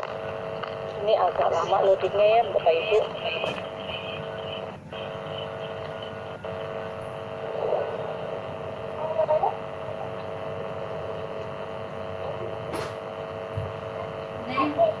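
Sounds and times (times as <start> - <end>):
steady background hum with tones: 0.0 - 15.0.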